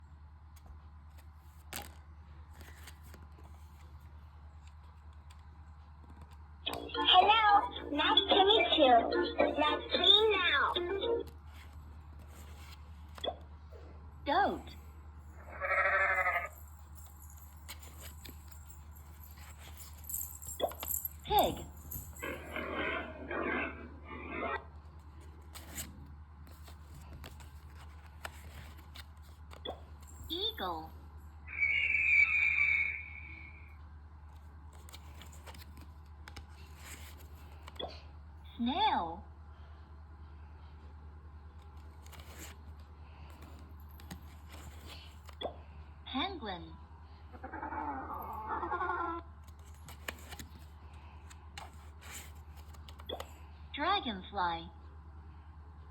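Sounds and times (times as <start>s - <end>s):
faint electrical hum: 0.0s - 55.9s
pig grunting: 22.4s - 24.7s.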